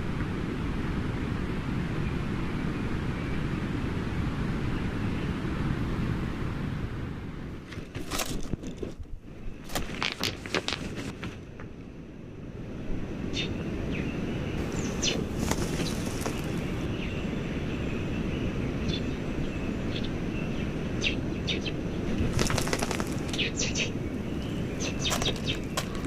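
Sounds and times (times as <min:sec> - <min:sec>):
birds chirping: 0:13.4 - 0:17.3, 0:21.0 - 0:26.0
rapid crackling: 0:14.6 - 0:16.9, 0:22.3 - 0:26.0.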